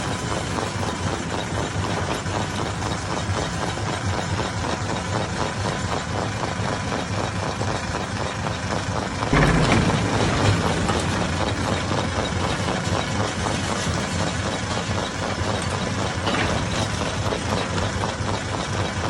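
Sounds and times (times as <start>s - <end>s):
stone crusher knocking rattle: 8.9s - 19.0s.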